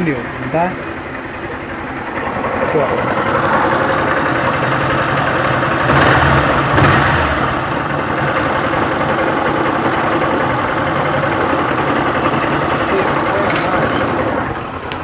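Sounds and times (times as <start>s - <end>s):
motorcycle engine idling: 0.0s - 15.0s
clutch rattling: 8.1s - 15.0s.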